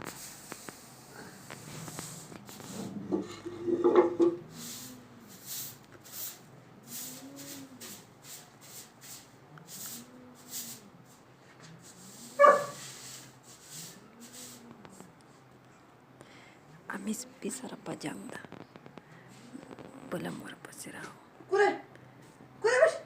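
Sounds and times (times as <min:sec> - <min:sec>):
dog yelping: 0:12.4 - 0:12.8, 0:22.6 - 0:23.0.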